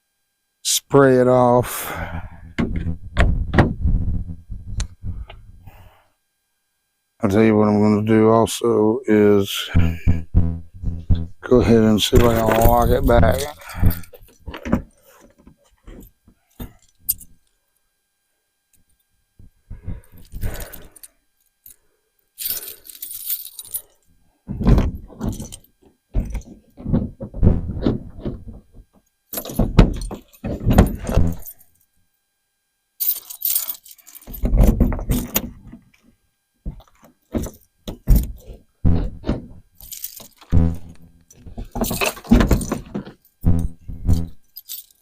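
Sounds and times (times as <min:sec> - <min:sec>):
keys jangling: 0:22.4 - 0:24.0, 0:29.4 - 0:31.6, 0:33.0 - 0:34.5, 0:39.8 - 0:40.5, 0:41.8 - 0:42.8, 0:44.2 - 0:45.0
key working in a lock: 0:33.0 - 0:35.5.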